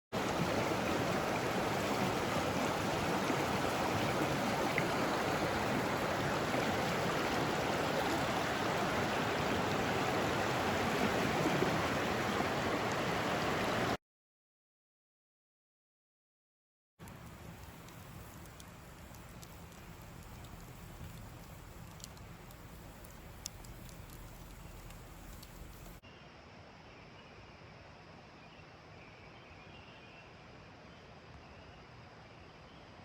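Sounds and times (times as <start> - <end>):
creek water rushing: 0.2 - 14.0, 17.0 - 26.0.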